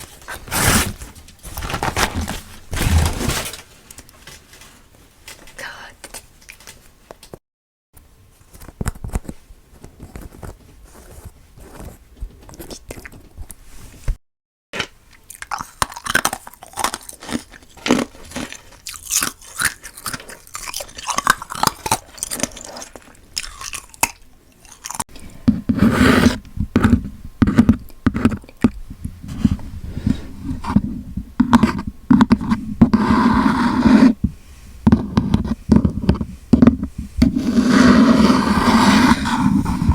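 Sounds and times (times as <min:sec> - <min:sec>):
wet chewing and mouth sounds: 0:12.2 - 0:13.6, 0:14.8 - 0:25.4.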